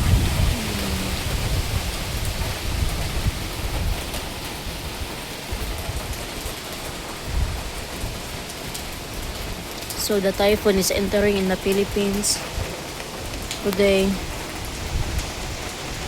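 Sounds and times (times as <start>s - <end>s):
heavy rain pouring: 0.0s - 16.0s
wind rumbling on microphone: 0.0s - 16.0s.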